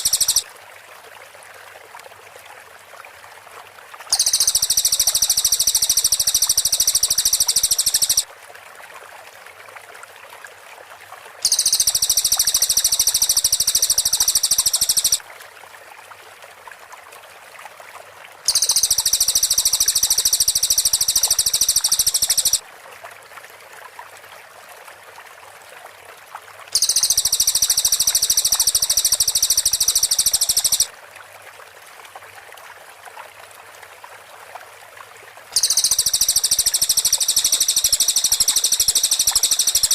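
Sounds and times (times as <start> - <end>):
bird rapid trill: 0.0 - 0.4, 4.1 - 8.2, 11.4 - 15.2, 18.5 - 22.6, 26.8 - 30.9, 35.6 - 39.9
insects buzzing: 0.0 - 0.4, 4.1 - 8.2, 11.4 - 15.2, 18.5 - 22.6, 26.8 - 30.9, 35.6 - 39.9
stream hiss: 0.0 - 25.2, 26.0 - 39.9.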